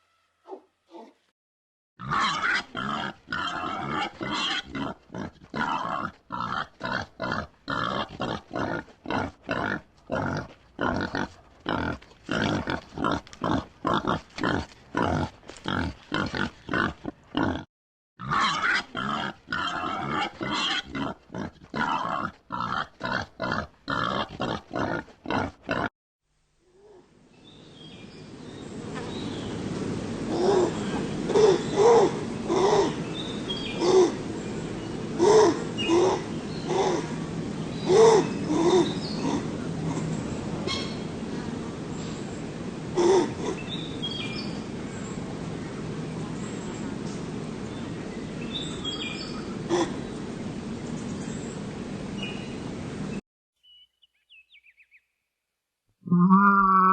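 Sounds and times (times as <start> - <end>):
noisy animal sound: 2.0 - 25.9
pig grunting: 2.0 - 25.9.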